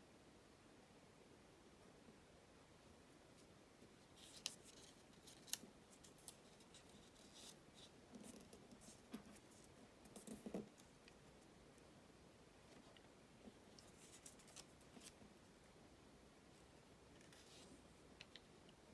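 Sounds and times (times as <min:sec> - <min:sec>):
paper crinkling: 0:04.2 - 0:10.9, 0:13.8 - 0:15.2.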